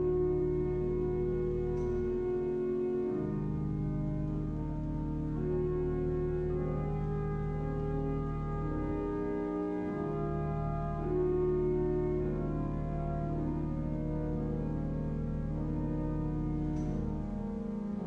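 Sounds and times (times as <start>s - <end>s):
pipe organ playing slow chords: 0.0s - 18.0s.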